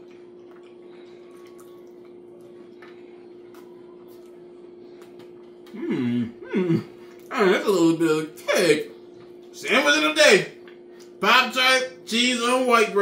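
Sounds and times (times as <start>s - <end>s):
person chewing: 0.0s - 7.3s, 10.6s - 11.2s
steady low hum: 0.0s - 13.0s.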